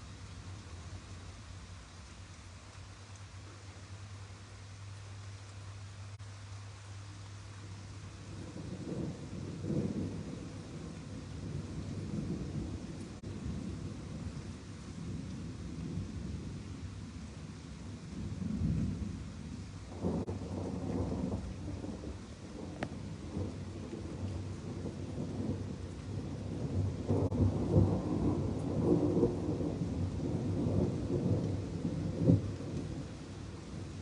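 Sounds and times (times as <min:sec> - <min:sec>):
steady rain: 0:00.0 - 0:34.0
thunder rumbling: 0:08.2 - 0:34.0.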